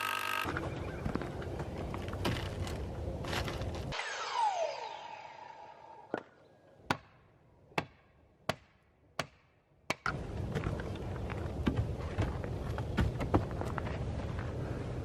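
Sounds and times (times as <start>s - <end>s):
falling swoosh: 3.9s - 6.4s.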